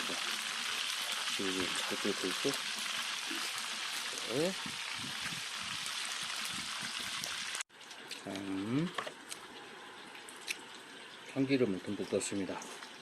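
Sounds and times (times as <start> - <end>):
chicken frying in hot oil: 0.0 - 7.7.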